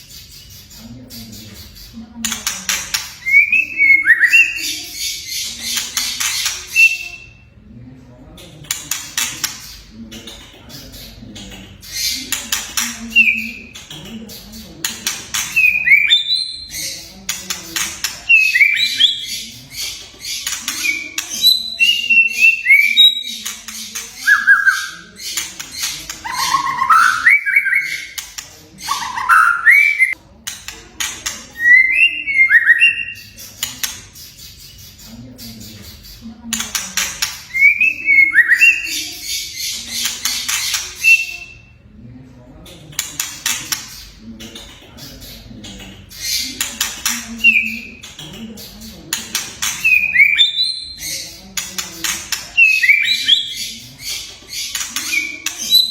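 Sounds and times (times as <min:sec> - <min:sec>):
bird whistling song: 0:03.2 - 0:05.2, 0:06.5 - 0:07.4, 0:24.2 - 0:25.1, 0:26.3 - 0:28.2, 0:28.9 - 0:30.2, 0:31.6 - 0:33.4, 0:37.5 - 0:38.9, 0:52.6 - 0:53.7.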